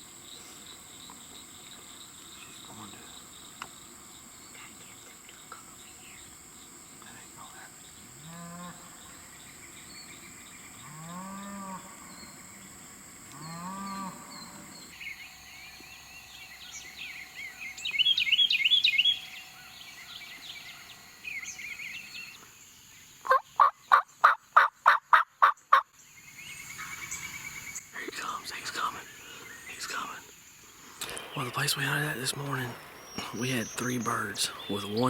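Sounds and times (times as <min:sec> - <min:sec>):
soft turkey calls: 0:23.2 - 0:25.8
turkey yelps: 0:23.2 - 0:25.8
turkey gobbling: 0:23.3 - 0:25.8.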